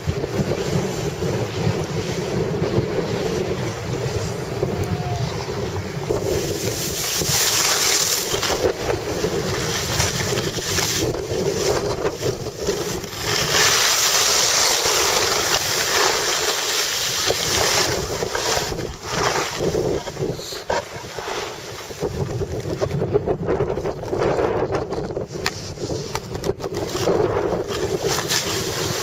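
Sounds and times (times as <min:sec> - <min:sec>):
wind rushing over microphone: 0:00.0 - 0:29.0.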